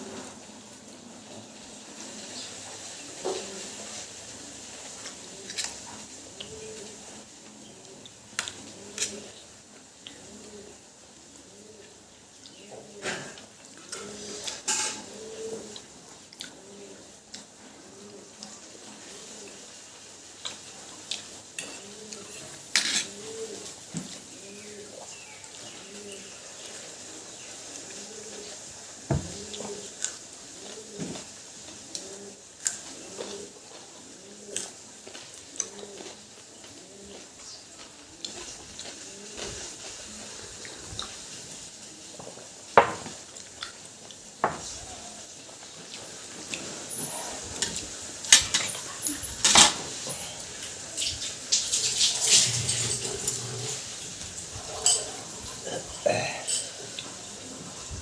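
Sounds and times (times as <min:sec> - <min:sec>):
dove cooing: 0:00.0 - 0:42.1, 0:46.1 - 0:58.0
dishes and cutlery clinking: 0:13.0 - 0:15.1, 0:21.6 - 0:23.3, 0:46.6 - 0:57.1.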